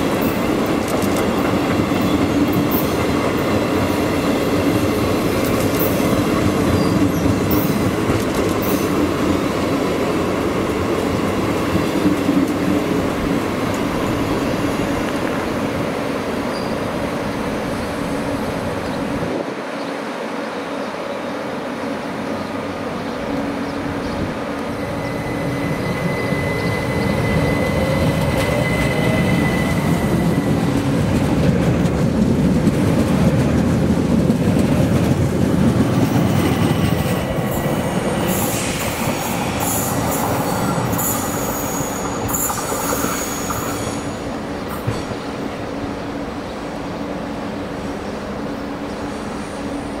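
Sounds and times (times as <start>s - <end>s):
train rumble passing: 20.5s - 50.0s
high-pitched wheel squeal: 24.7s - 30.6s.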